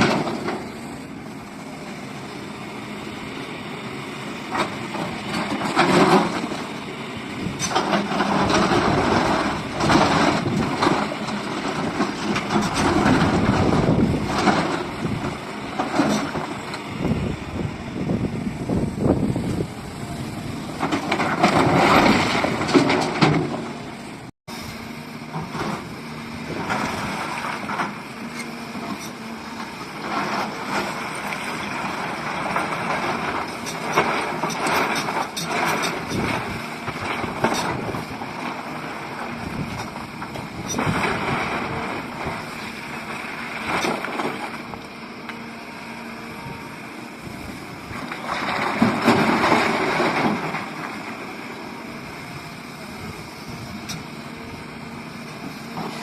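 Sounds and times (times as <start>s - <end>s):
excavator diesel engine: 0.0s - 56.0s.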